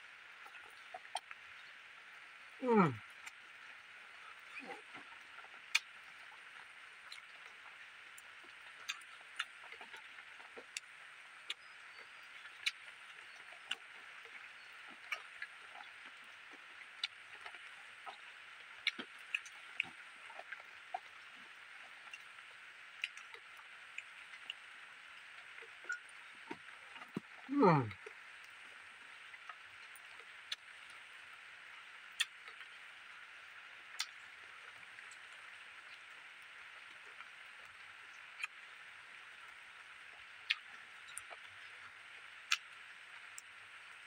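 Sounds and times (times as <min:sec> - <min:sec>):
chewing and lip smacks: 0:08.8 - 0:10.9, 0:12.4 - 0:14.0, 0:17.0 - 0:18.2, 0:18.8 - 0:21.2, 0:23.0 - 0:24.6, 0:33.9 - 0:34.2.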